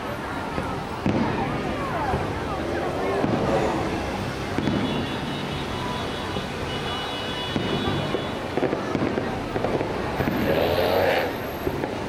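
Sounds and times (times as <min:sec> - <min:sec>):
steady outdoor rumble: 0:00.0 - 0:07.0, 0:07.6 - 0:12.0
distant fireworks popping and crackling: 0:00.0 - 0:12.0.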